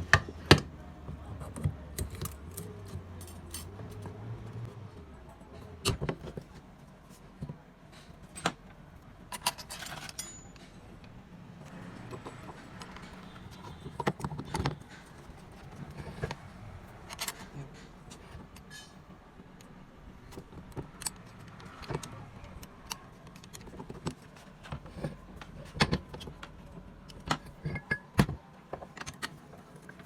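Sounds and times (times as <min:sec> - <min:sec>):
metal tools clinking and knocking: 0:02.0 - 0:04.0, 0:09.3 - 0:11.1, 0:27.3 - 0:28.2.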